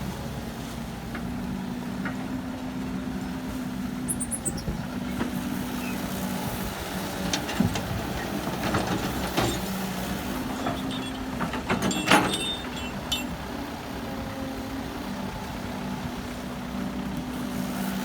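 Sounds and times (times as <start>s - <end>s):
heavy diesel engine running: 5.3s - 18.0s
metal knocks and clanks: 10.4s - 13.4s.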